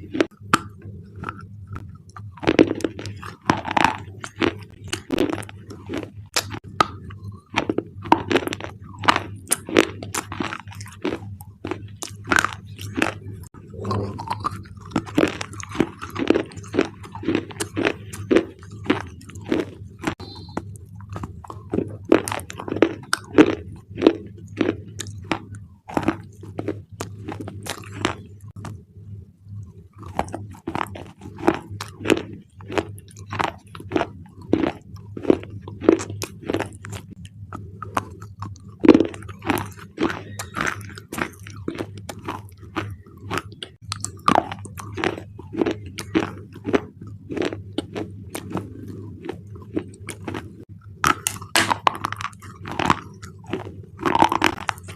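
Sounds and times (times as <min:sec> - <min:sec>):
crunchy biting and chewing: 0:00.0 - 0:28.8, 0:29.5 - 0:54.9.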